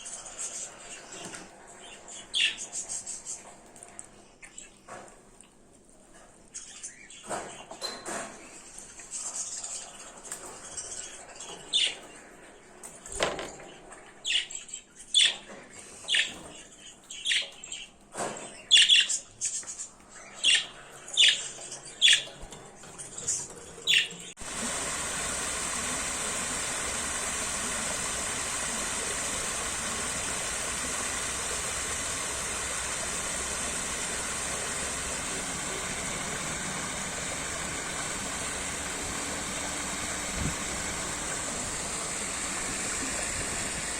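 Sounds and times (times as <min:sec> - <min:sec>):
bird chirping: 0:14.3 - 0:22.5
flowing water rushing: 0:24.4 - 0:43.9.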